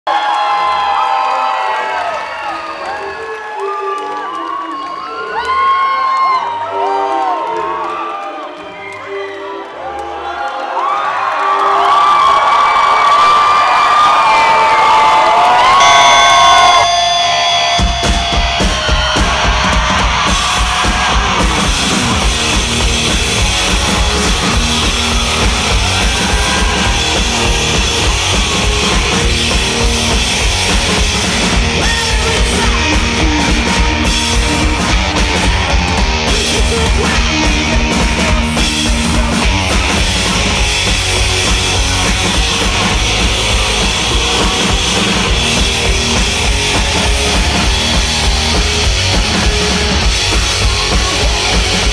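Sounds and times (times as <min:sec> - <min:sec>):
rock band playing live: 0:14.3 - 0:51.9.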